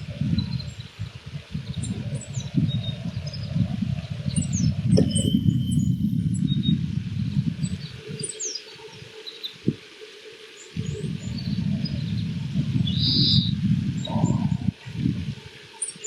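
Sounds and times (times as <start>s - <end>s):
bird high chirps: 4.4s - 6.8s, 12.9s - 14.7s.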